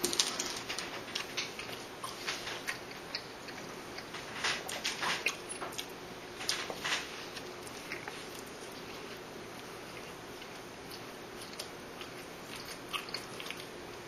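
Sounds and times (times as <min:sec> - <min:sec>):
person chewing with mouth clicks: 0:01.2 - 0:04.3, 0:07.3 - 0:14.0.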